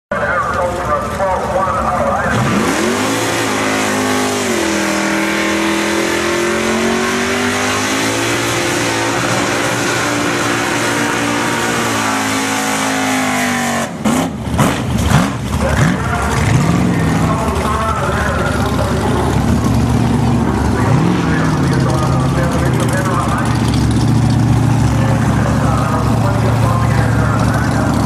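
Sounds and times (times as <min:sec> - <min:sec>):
car engine revving: 0:00.3 - 0:28.0.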